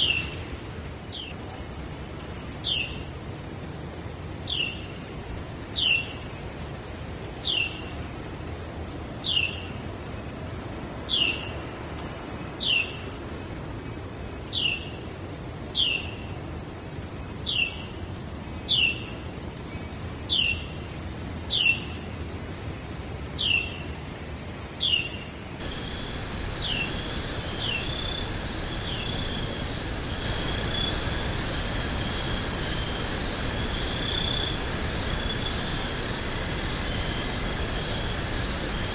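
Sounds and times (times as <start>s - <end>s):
background hiss: 0.0s - 38.9s
high insect chorus: 25.6s - 38.9s.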